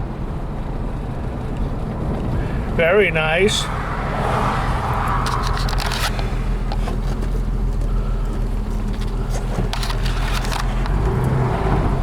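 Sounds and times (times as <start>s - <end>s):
car engine running: 0.8s - 12.0s
sharp clicks: 5.1s - 7.4s, 8.7s - 11.3s.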